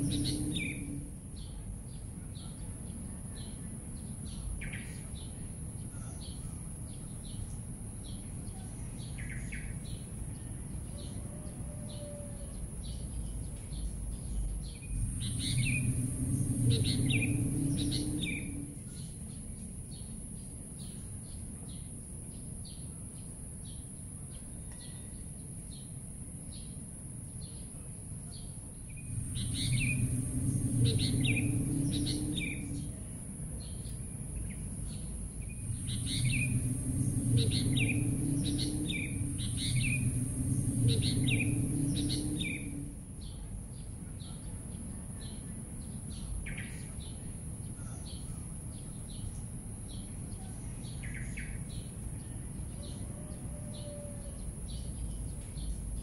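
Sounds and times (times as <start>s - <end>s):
steady high hiss: 0.0s - 1.4s, 14.0s - 19.7s, 27.6s - 44.2s
low rumble: 0.0s - 2.2s, 12.6s - 20.2s, 28.7s - 46.6s
small birds chirping: 0.0s - 11.2s, 11.9s - 25.9s, 27.4s - 56.0s.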